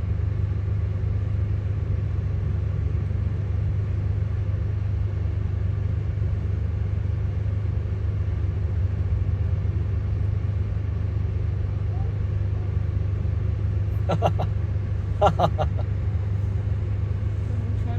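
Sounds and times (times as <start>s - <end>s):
road traffic rumble: 13.9s - 17.9s.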